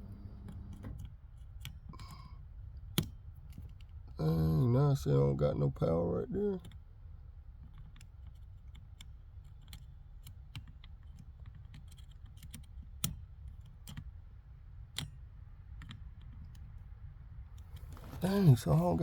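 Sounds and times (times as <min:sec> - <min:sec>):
low steady hum: 0:00.0 - 0:00.9, 0:04.2 - 0:06.8, 0:17.8 - 0:19.0
clicks and taps of wires: 0:00.4 - 0:04.1, 0:07.6 - 0:14.2.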